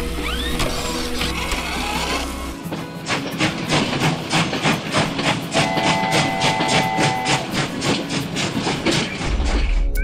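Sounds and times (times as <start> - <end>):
steam train chugging: 2.7 - 9.2
train whistle chord: 5.5 - 7.7.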